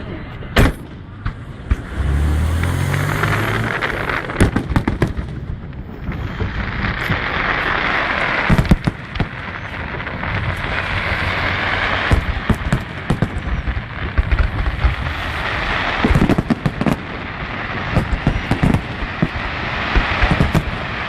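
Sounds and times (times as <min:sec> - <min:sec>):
low drone: 0:00.0 - 0:06.9
fireworks bangs: 0:00.0 - 0:21.0
fireworks crackling hiss: 0:00.0 - 0:21.0.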